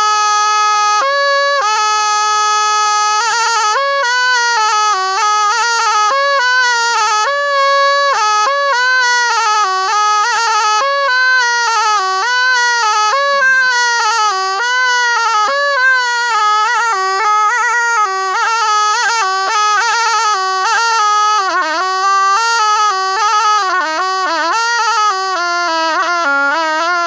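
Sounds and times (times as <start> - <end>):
reedy oboe melody: 0.0 - 27.0.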